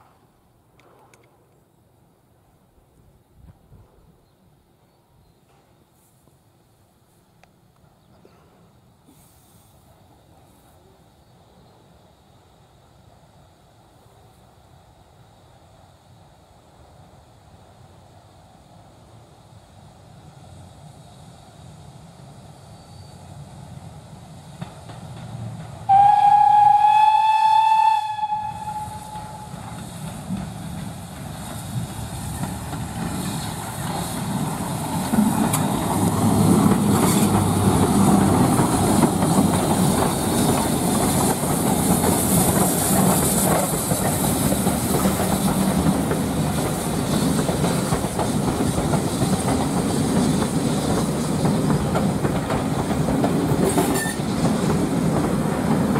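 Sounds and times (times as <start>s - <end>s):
steam train passing: 0.0s - 55.9s
steam locomotive whistle: 25.9s - 29.8s.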